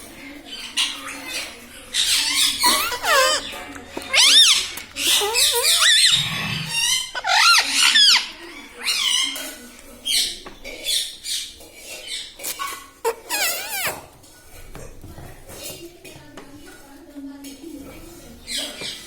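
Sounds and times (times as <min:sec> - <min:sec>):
parrot squawking: 0:01.9 - 0:09.4, 0:10.1 - 0:14.0.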